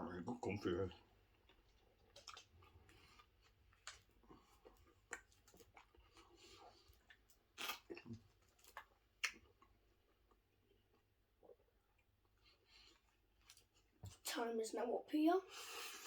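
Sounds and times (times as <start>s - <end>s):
person chewing: 1.1s - 14.0s
wet mouth sounds with crunches: 1.5s - 11.7s.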